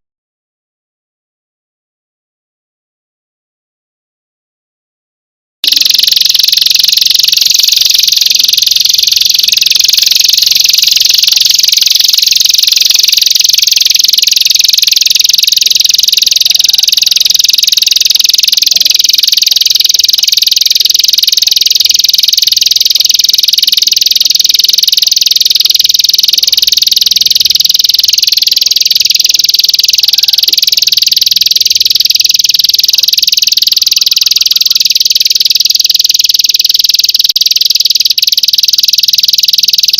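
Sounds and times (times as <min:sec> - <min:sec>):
high-pitched trilling chorus: 0:05.6 - 0:20.4.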